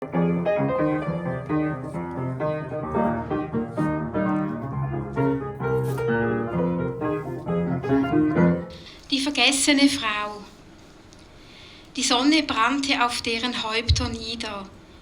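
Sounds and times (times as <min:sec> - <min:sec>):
solo piano melody: 0:00.0 - 0:09.0.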